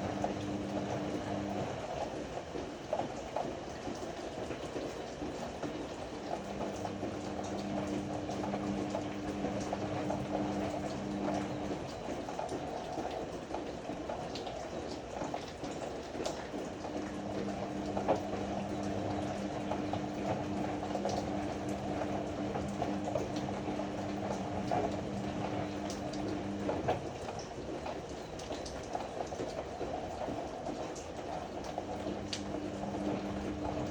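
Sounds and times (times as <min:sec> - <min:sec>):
motor humming: 0:00.0 - 0:02.0, 0:06.2 - 0:12.0, 0:16.7 - 0:27.1, 0:31.7 - 0:33.9.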